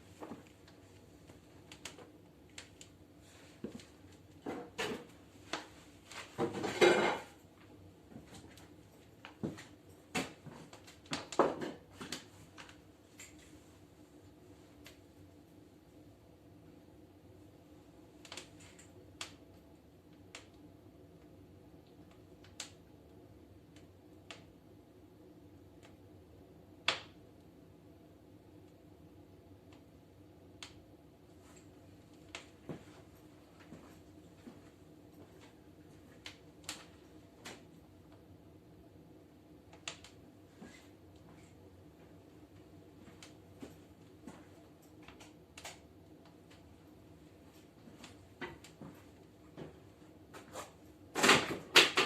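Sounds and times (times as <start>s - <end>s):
wood fire crackling: 0.0s - 52.0s
firewood crackling and knocking: 9.2s - 12.7s.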